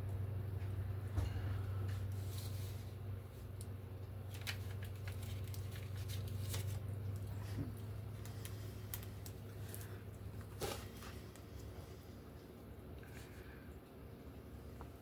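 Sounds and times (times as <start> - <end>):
steady low hum: 0.0 - 15.0
paper rustling and scraping: 2.0 - 3.5, 4.2 - 11.7.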